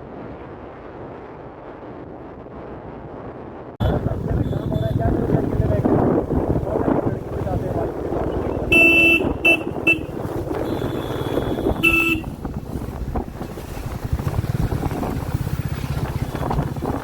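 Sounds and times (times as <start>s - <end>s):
wind noise: 0.0s - 17.0s
vehicle horn honking: 3.8s - 5.2s, 8.2s - 12.4s
motorcycle engine running: 3.8s - 17.0s.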